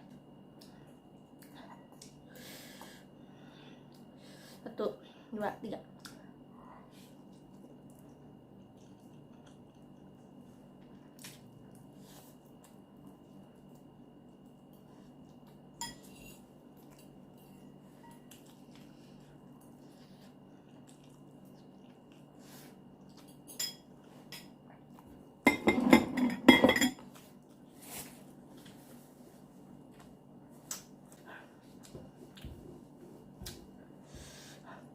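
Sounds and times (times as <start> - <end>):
cutlery clinking against a bowl: 15.8 - 16.4, 23.2 - 24.6, 25.5 - 27.1.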